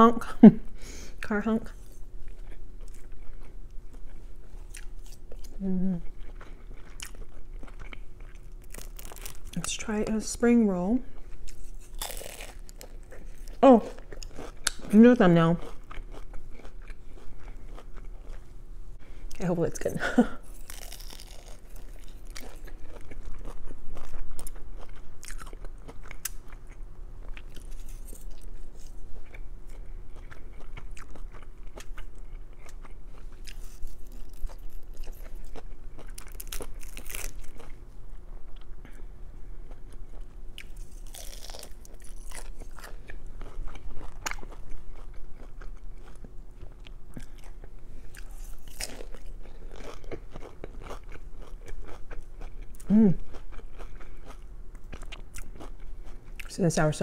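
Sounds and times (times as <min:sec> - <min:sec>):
chewing and crunching: 0:01.2 - 0:10.0, 0:11.0 - 0:56.9
crisp wrapper crackling: 0:08.6 - 0:09.6, 0:36.1 - 0:37.6.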